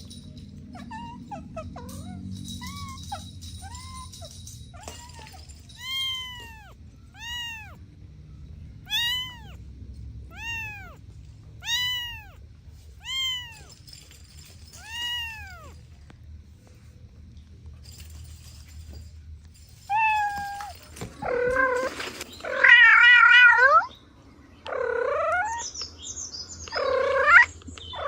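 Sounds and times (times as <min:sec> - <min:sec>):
kitten meowing: 0:04.8 - 0:07.8, 0:08.8 - 0:09.6, 0:10.3 - 0:11.0, 0:11.6 - 0:12.4, 0:13.0 - 0:13.7, 0:14.8 - 0:15.8.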